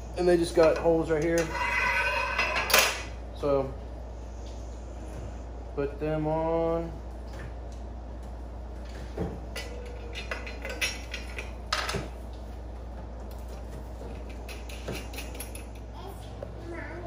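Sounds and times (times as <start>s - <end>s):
wire cage parts clinking: 9.5s - 12.0s, 14.1s - 15.8s.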